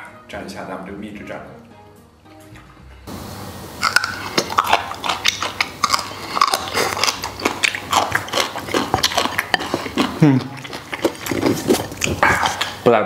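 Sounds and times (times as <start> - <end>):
mouth smacks and clicks: 3.8 - 12.9
person chewing: 3.8 - 12.9.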